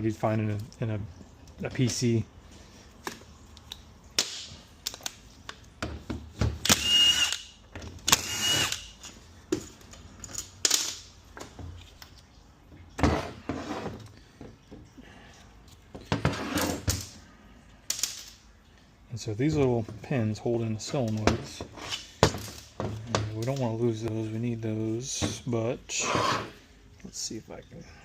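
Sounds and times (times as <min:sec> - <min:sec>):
cordless drill running: 0:06.7 - 0:07.4, 0:08.1 - 0:08.9
metal parts clicking and clunking: 0:09.0 - 0:12.2.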